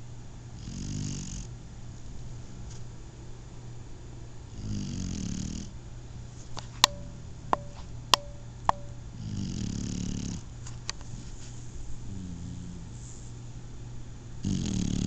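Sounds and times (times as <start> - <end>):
puppy snoring: 0.6 - 1.6, 4.5 - 5.8, 9.2 - 10.5, 12.0 - 13.2, 14.4 - 15.0
sharp ringing clicks: 6.8 - 9.1.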